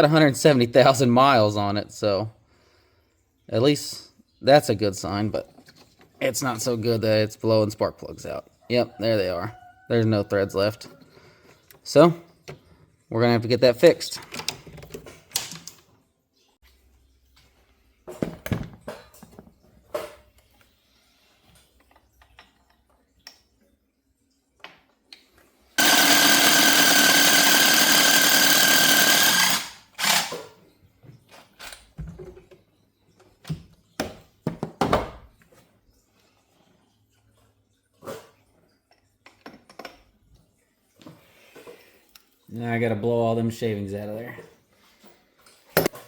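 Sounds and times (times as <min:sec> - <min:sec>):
power drill running: 0:25.8 - 0:30.5
tools clicking and knocking: 0:25.8 - 0:30.5.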